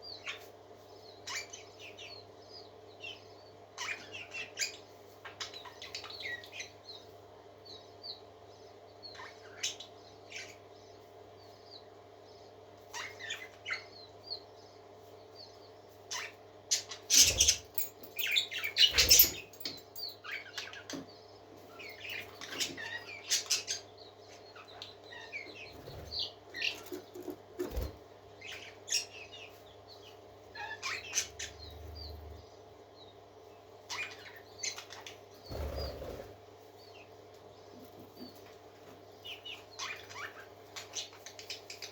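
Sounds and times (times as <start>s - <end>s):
parakeets chirping and chattering: 0.0s - 0.4s, 1.0s - 41.9s
steady low hum: 23.2s - 39.6s.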